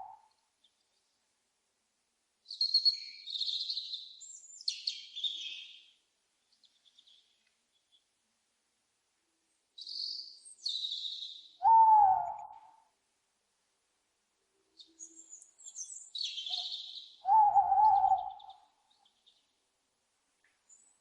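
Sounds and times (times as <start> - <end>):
owl screeching: 11.6 - 12.6, 17.3 - 18.4.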